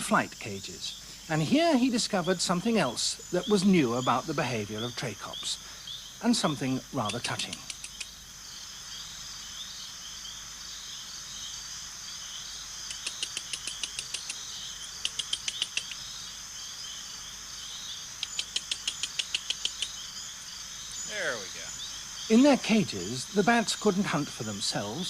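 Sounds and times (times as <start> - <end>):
insects chirring: 0.0 - 25.0
rapid sharp clicking pulses: 12.9 - 16.0, 18.2 - 20.0.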